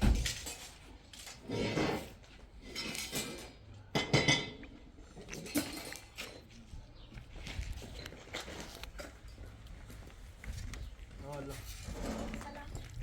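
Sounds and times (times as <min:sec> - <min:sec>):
metal objects clanking: 0:00.0 - 0:04.6.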